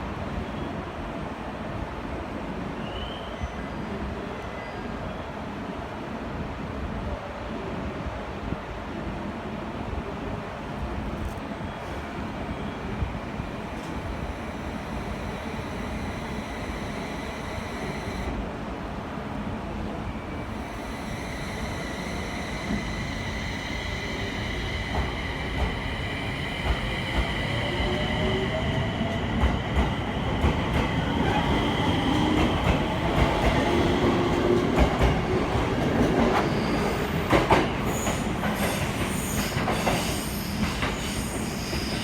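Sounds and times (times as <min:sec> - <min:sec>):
electric train motor whine: 0:13.0 - 0:18.4, 0:20.3 - 0:33.7
high wheel squeal: 0:13.4 - 0:18.3, 0:20.3 - 0:29.2.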